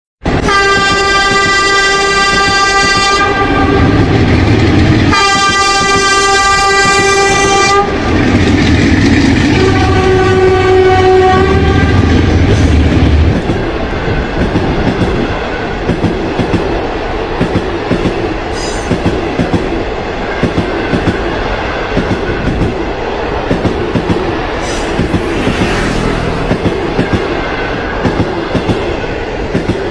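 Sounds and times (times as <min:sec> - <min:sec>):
train rumbling: 0:00.2 - 0:29.9
train horn blasts: 0:00.3 - 0:04.2, 0:05.1 - 0:08.0, 0:09.5 - 0:12.2.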